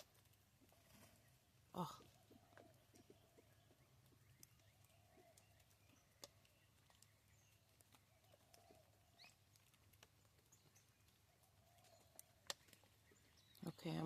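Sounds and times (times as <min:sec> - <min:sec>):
pheasants pecking at seed: 0:00.0 - 0:14.0.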